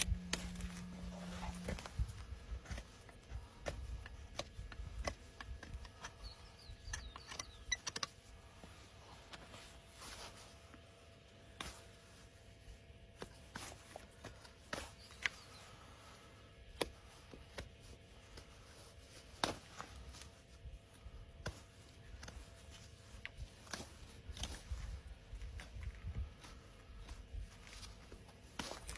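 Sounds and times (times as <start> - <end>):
tools scraping hoof: 0.0 - 2.0.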